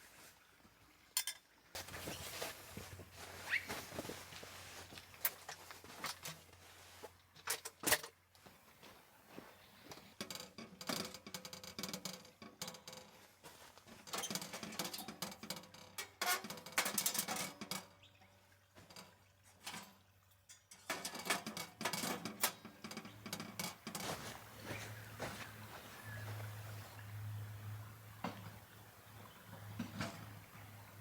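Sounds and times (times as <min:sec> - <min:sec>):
camping gear being handled: 0:01.8 - 0:11.1, 0:12.7 - 0:15.5, 0:20.9 - 0:31.0.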